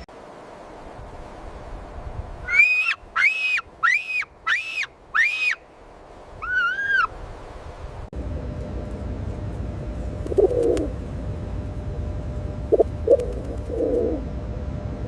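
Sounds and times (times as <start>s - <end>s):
animal whistle-like calls: 2.5s - 5.6s
animal wavering call: 6.4s - 7.1s.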